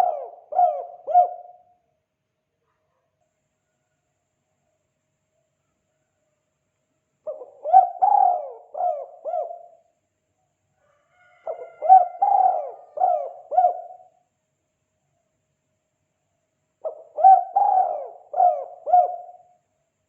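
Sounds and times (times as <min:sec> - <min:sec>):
dove cooing: 0:00.0 - 0:01.8, 0:07.3 - 0:09.9, 0:11.3 - 0:14.2, 0:16.8 - 0:19.6.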